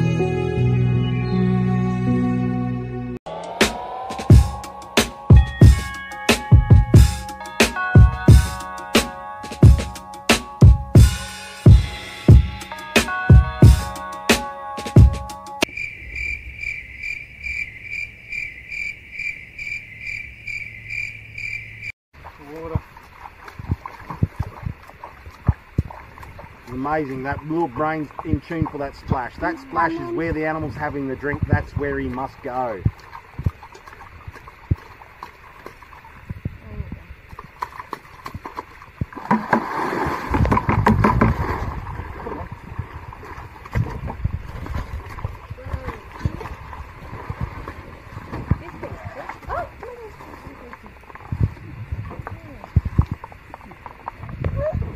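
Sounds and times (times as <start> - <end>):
crickets trilling: 15.6 - 54.9
water splashing in a creek: 22.1 - 54.9.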